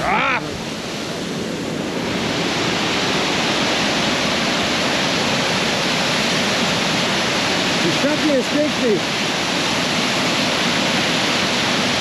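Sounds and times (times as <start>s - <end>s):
rushing water: 0.0s - 12.0s.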